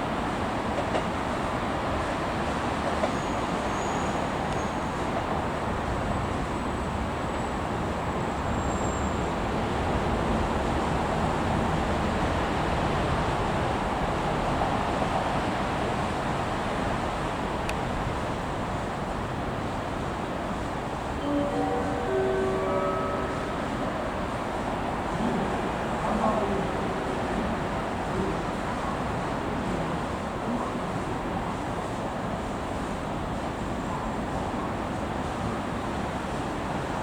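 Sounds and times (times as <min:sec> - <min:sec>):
train rumbling past: 0:00.0 - 0:37.0.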